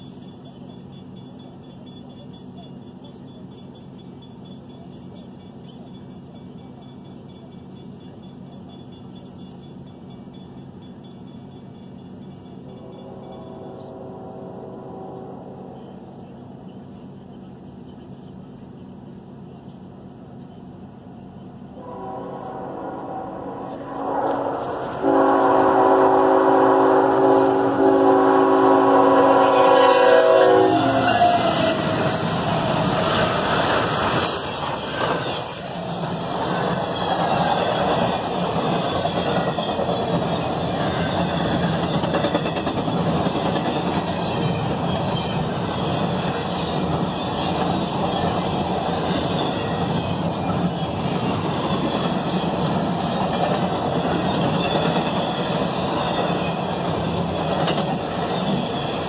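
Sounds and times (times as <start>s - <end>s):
train wheels rumbling on rail: 0.0s - 59.0s
locomotive horn chord: 12.7s - 16.2s, 21.8s - 32.1s.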